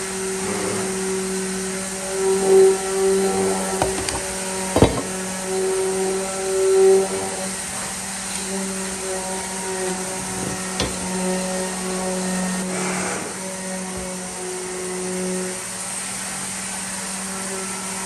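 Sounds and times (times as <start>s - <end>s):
power tool motor whining: 0.0s - 18.0s
short hissy scrape: 12.6s - 13.4s.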